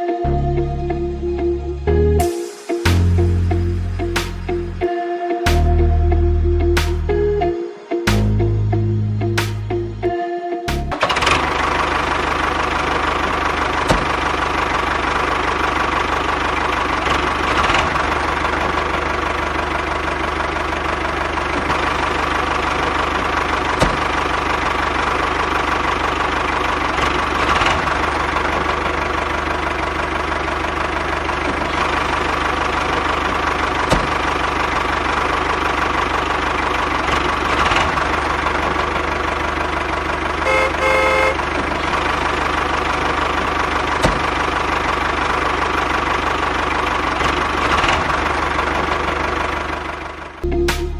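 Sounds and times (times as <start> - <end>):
tractor engine idling: 10.8 - 50.9.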